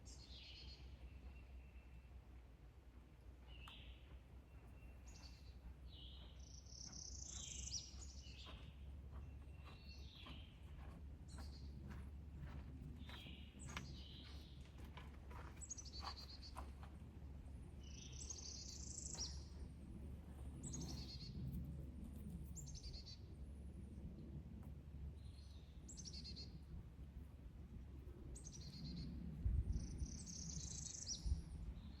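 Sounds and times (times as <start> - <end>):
songbirds chirping: 0.0 - 21.7, 25.1 - 26.8, 28.1 - 32.0
steady low rumble: 16.7 - 32.0.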